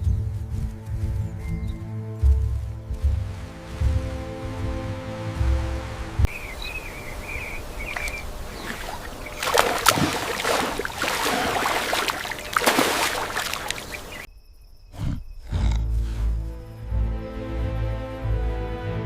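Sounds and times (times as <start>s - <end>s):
rough outdoor noise: 0.0s - 17.9s
faint high chirps: 6.3s - 15.4s.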